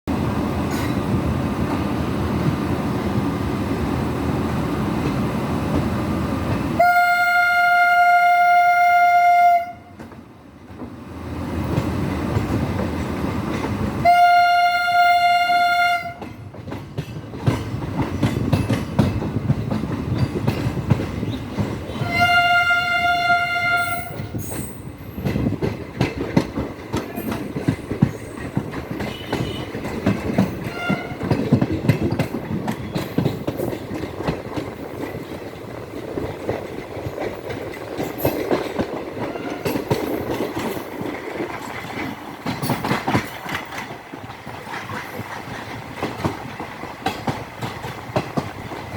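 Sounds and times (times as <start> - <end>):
train rumbling on tracks: 0.0 - 48.9
train horn blasts: 6.8 - 10.0, 14.0 - 16.4, 21.9 - 24.3, 29.0 - 29.8, 30.6 - 31.3, 39.3 - 39.8
wheels clattering over rail joints: 11.6 - 48.9.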